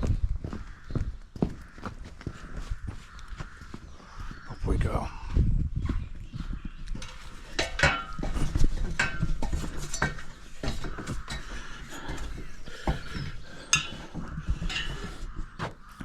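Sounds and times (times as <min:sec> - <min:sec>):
knocks and clinks on a ladder: 0:06.9 - 0:16.0.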